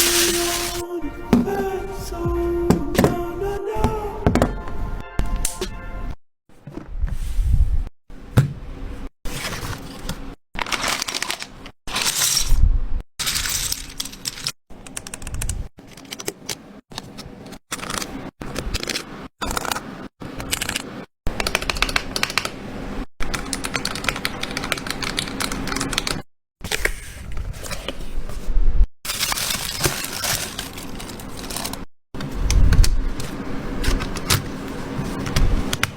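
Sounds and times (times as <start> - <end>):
plastic items clicking and crinkling: 0.0 - 0.8, 10.6 - 12.5, 29.1 - 31.9.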